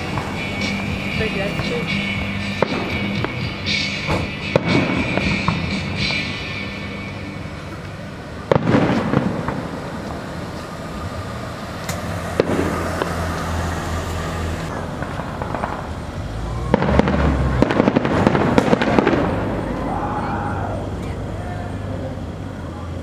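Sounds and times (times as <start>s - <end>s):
firework cracks: 0.0s - 6.5s, 7.8s - 11.0s, 11.6s - 21.2s
crackling firework pops: 2.6s - 3.5s, 7.8s - 10.8s, 11.8s - 13.5s, 14.7s - 19.6s
firework boom with rumble: 4.1s - 6.1s, 8.5s - 10.2s, 12.4s - 13.2s, 14.7s - 19.8s.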